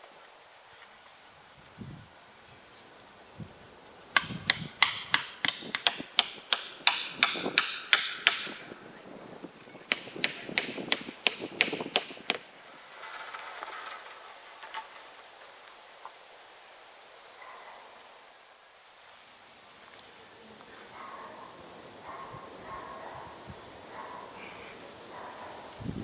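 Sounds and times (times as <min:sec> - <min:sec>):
hammer driving nails into wood: 0:04.2 - 0:08.7, 0:09.9 - 0:12.5
short rustle: 0:12.5 - 0:16.2.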